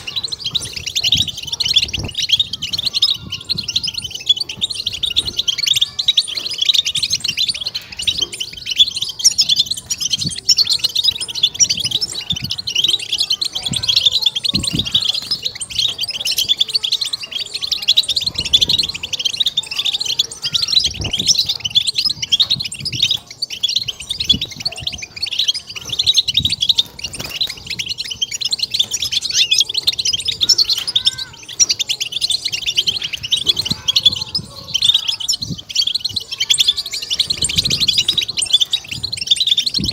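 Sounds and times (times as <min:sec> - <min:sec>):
goldfinch twittering song: 0:00.0 - 0:39.9.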